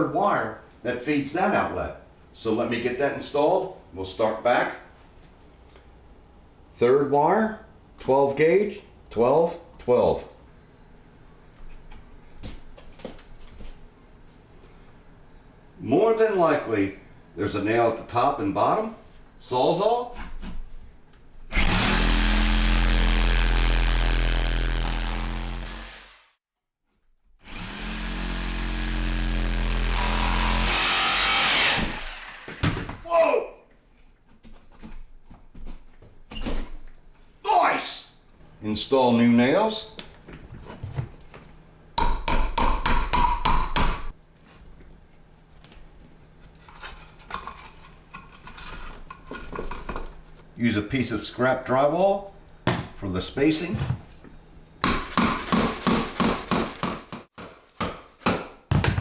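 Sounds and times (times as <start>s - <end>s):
reciprocating saw cutting nails: 21.5s - 26.3s, 27.5s - 33.0s, 54.8s - 57.3s
hammer blows on nails: 54.8s - 59.0s.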